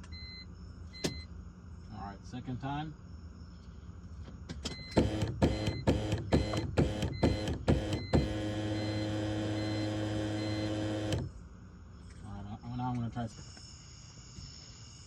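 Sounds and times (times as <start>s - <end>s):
car engine cranking without firing: 4.9s - 11.3s.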